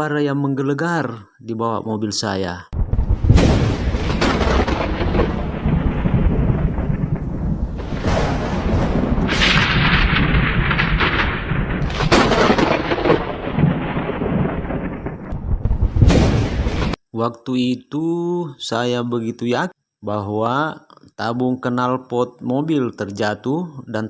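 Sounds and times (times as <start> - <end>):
thundering rumble under car: 2.8 - 17.0.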